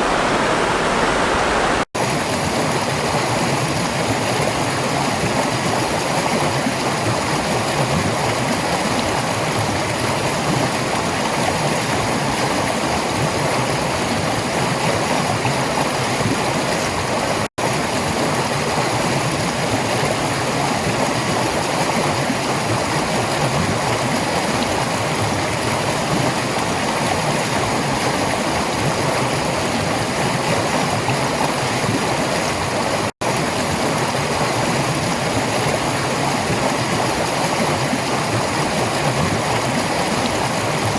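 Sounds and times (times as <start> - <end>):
stream water rushing and gurgling: 0.0 - 40.9.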